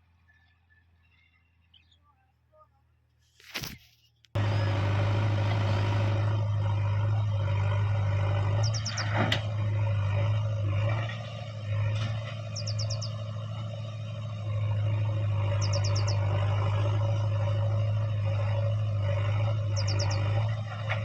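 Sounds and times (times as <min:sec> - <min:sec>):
diesel engine running: 0:04.4 - 0:21.0
bird chirping: 0:08.6 - 0:09.2, 0:12.5 - 0:13.2, 0:15.5 - 0:16.3, 0:19.7 - 0:20.3.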